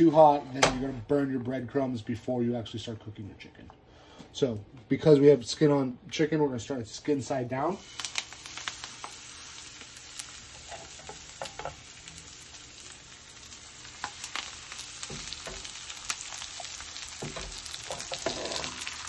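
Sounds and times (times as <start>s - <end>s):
chicken sizzling in oil: 7.6s - 19.0s.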